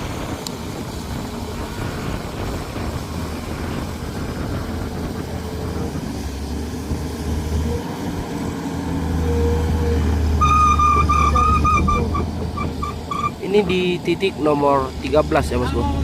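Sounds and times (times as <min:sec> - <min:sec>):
heavy engine rumbling: 0:00.0 - 0:16.0
high choppy tone: 0:10.4 - 0:13.8.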